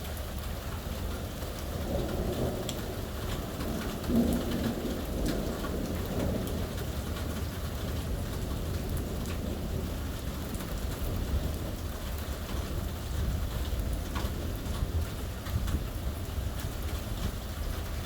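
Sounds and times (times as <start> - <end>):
rain falling: 0.0 - 18.0
deep thunder rumble: 1.8 - 11.8.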